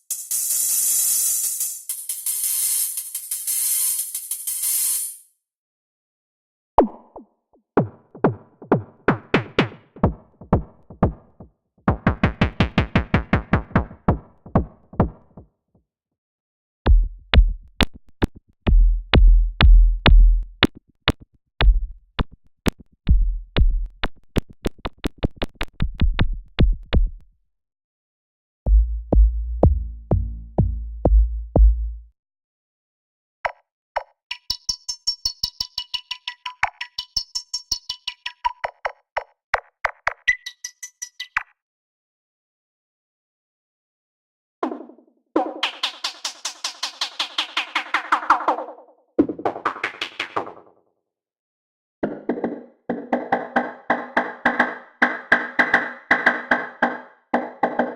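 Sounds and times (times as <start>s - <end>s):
synthesizer plucked notes: 28.7s - 32.0s
deep synth bass: 28.7s - 32.1s.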